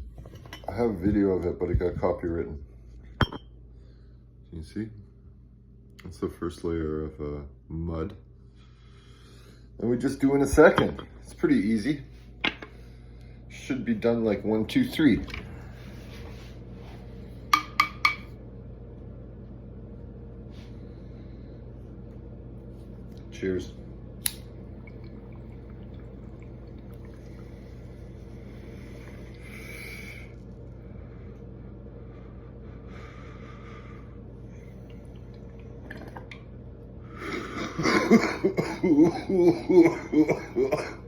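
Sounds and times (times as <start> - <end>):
steady low hum: 0.0 - 41.0
glass clinks: 3.2 - 3.5
water bong bubbling: 24.4 - 30.8, 34.6 - 36.6
person inhaling: 32.1 - 34.1
person coughing: 37.6 - 41.0.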